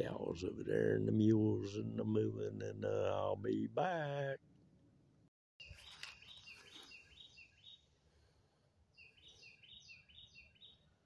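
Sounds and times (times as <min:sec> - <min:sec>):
songbird chirping: 0:05.6 - 0:11.0.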